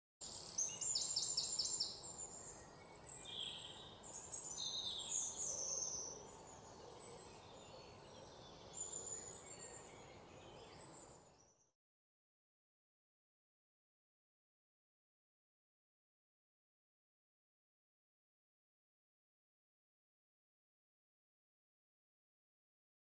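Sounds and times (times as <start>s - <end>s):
birds chirping and singing: 0.2s - 11.6s
faint background noise: 0.2s - 11.7s.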